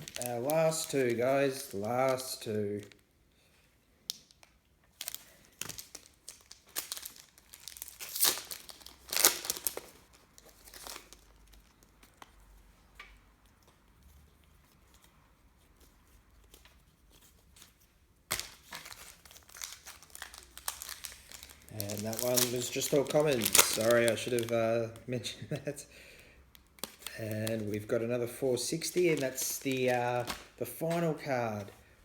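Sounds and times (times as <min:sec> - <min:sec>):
wrapper tearing and crinkling: 0:00.0 - 0:03.0, 0:04.1 - 0:12.3, 0:18.3 - 0:25.1, 0:26.5 - 0:31.7.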